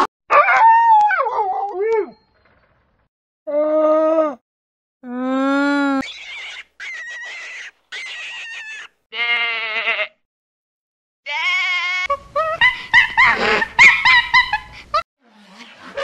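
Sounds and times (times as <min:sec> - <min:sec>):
flock bleating: 0:09.1 - 0:10.2
sheep bleating: 0:09.2 - 0:10.2.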